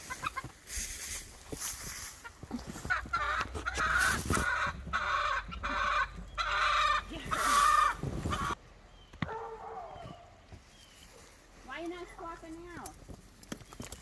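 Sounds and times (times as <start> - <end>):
chickens squawking: 0.0 - 0.8, 1.8 - 8.6.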